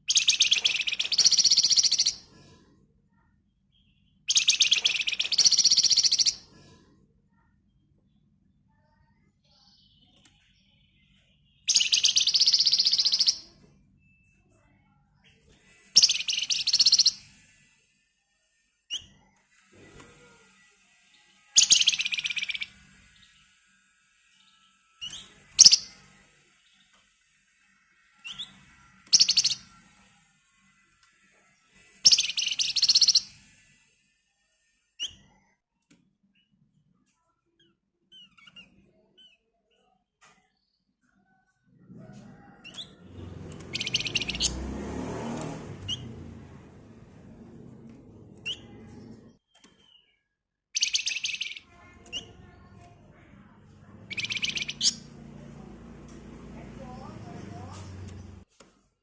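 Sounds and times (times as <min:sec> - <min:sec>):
bird chirps: 0:00.0 - 0:02.3, 0:03.7 - 0:06.5, 0:08.7 - 0:17.6, 0:21.1 - 0:23.5, 0:24.4 - 0:27.0, 0:28.0 - 0:29.8, 0:31.8 - 0:33.7, 0:42.3 - 0:44.7, 0:45.9 - 0:46.2, 0:48.4 - 0:53.2, 0:53.9 - 0:55.5
bird rattling trills: 0:25.1 - 0:25.9.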